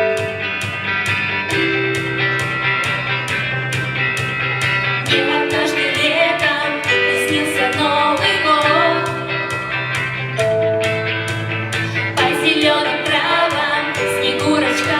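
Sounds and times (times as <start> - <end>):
strummed guitar: 0.0 - 14.9
person singing: 5.1 - 9.3, 11.8 - 14.9.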